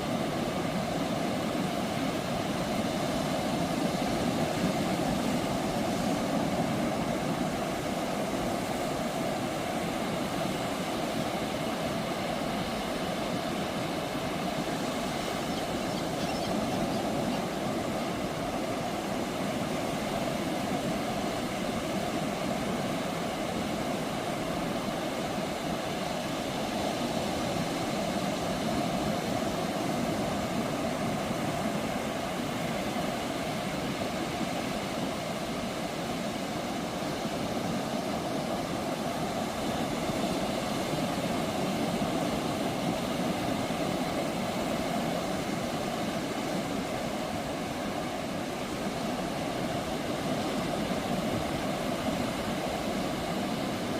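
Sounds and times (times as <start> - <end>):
ocean surf breaking: 0.0 - 53.9.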